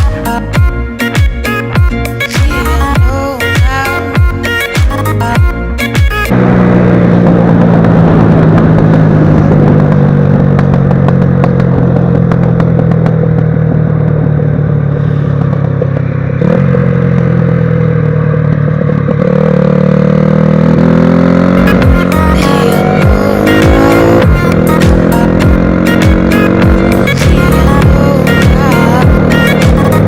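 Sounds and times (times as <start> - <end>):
moped engine idling: 10.0 - 19.4.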